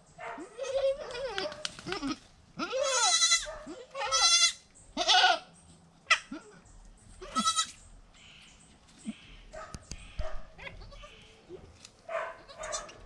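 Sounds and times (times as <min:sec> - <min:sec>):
goats bleating: 0:00.5 - 0:05.5, 0:07.2 - 0:07.8.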